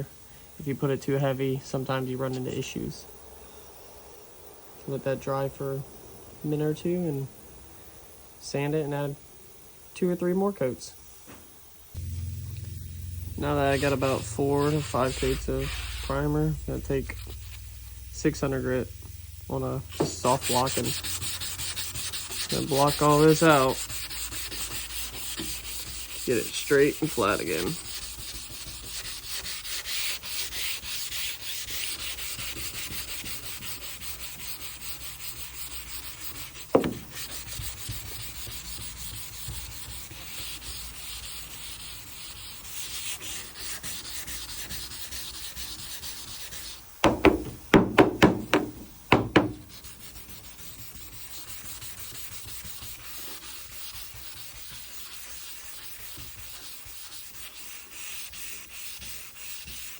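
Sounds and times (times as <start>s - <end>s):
sandpaper rubbing on panel: 12.0s - 59.9s
sharp knocks: 36.7s - 37.2s, 47.0s - 49.8s.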